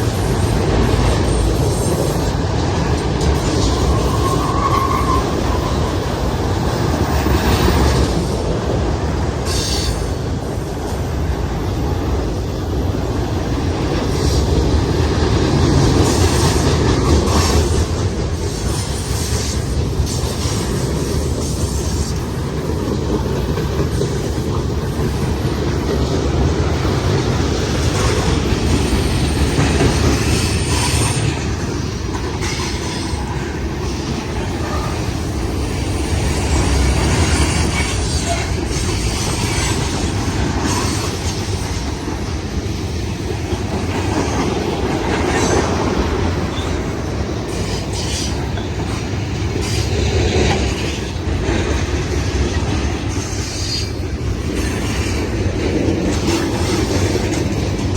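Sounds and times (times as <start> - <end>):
train wheels rumbling on rail: 0.0 - 57.9
wheel squeals: 3.2 - 8.1
clacking over rail joints: 13.4 - 57.9.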